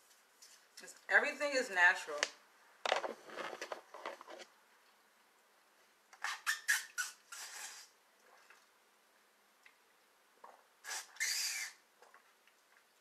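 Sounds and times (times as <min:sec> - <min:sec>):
slurping through a straw: 0:06.2 - 0:08.6, 0:10.4 - 0:12.2.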